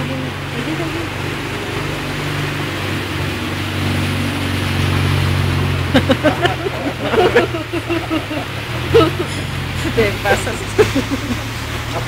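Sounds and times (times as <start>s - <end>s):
vehicle engine droning: 0.0s - 12.0s
person speaking: 6.2s - 11.4s.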